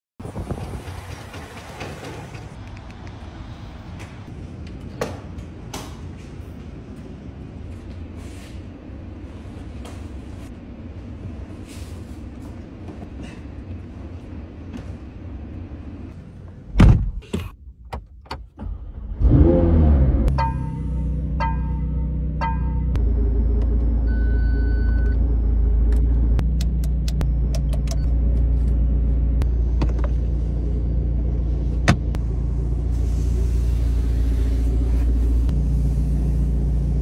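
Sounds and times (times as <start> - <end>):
car engine starting and running: 0.2 - 4.0, 13.7 - 37.0
loud thump: 16.8 - 17.2.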